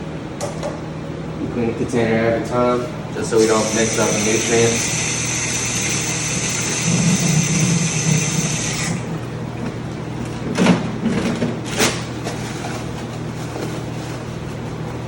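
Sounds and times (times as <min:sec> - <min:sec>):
tap water running: 0:03.4 - 0:10.0.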